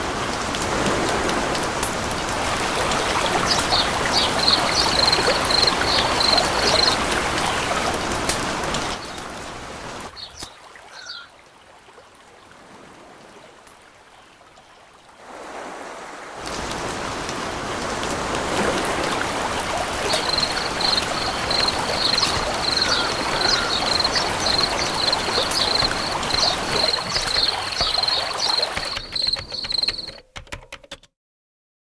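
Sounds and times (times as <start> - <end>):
running water: 0.0 - 11.6, 16.4 - 30.2
cricket trilling: 2.8 - 7.7, 19.8 - 30.2.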